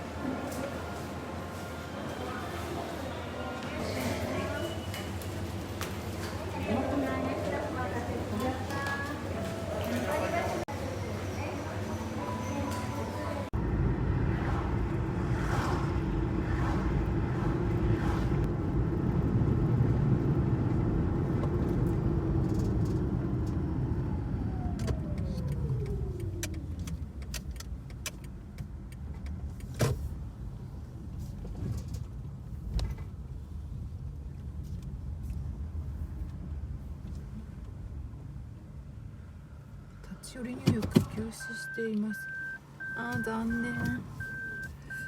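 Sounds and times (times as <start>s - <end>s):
car engine and road noise: 13.2s - 45.0s
falling engine whine: 13.6s - 27.3s.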